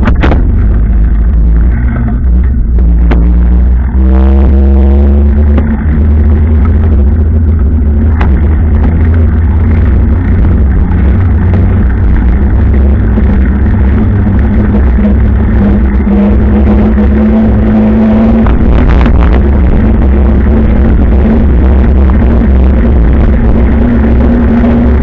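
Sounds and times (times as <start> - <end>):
motorcycle engine cruising: 0.0 - 25.0
wind rumble on microphone: 0.0 - 25.0.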